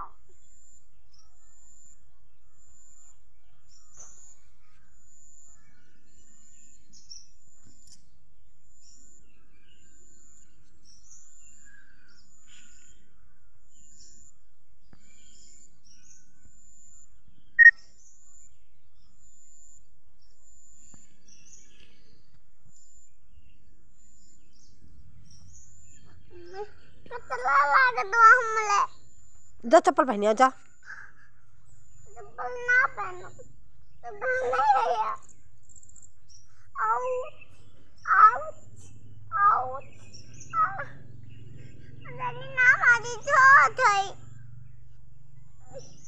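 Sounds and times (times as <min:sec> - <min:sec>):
birds chirping: 0:15.0 - 0:46.0.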